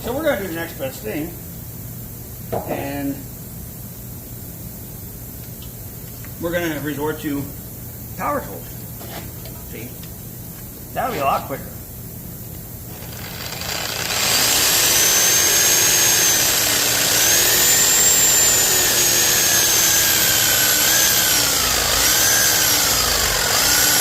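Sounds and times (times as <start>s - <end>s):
power tool cutting metal: 12.9s - 24.0s.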